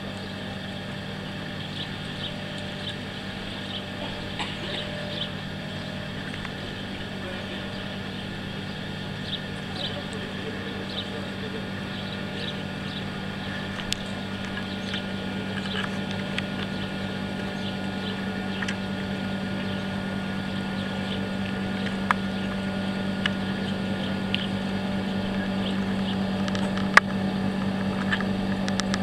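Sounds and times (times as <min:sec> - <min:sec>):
passenger train drone: 0:00.0 - 0:29.0.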